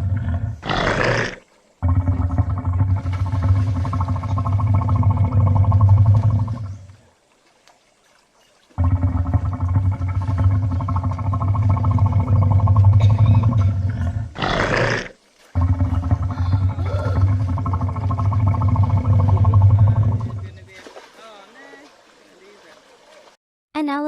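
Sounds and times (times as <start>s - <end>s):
animal growling low: 0.0s - 7.0s, 8.8s - 20.6s
animal hissing: 0.3s - 2.7s.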